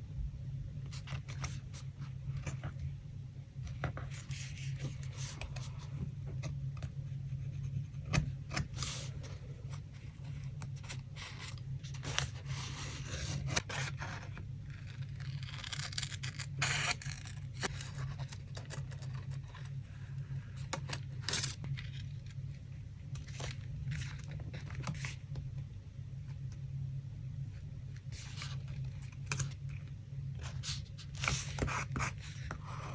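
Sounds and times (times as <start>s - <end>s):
steady low hum: 0.0s - 32.9s
paper rustling and scraping: 3.7s - 22.4s, 28.0s - 29.8s, 30.4s - 32.9s.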